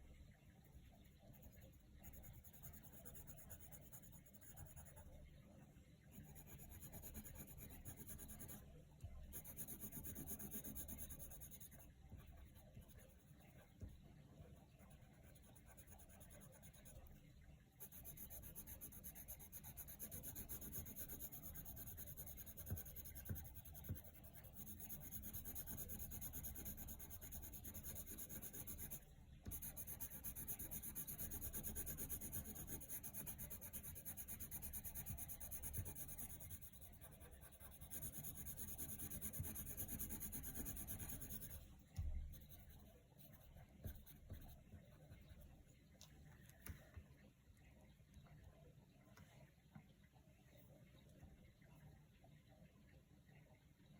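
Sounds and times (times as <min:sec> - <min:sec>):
pencil scratching on paper: 0:01.2 - 0:05.2, 0:06.1 - 0:08.6, 0:09.2 - 0:17.1, 0:17.8 - 0:45.6.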